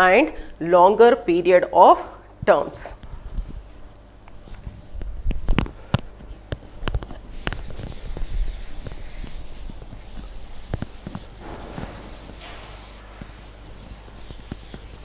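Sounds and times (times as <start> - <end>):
soft rubbing or scratching: 6.9 - 15.0.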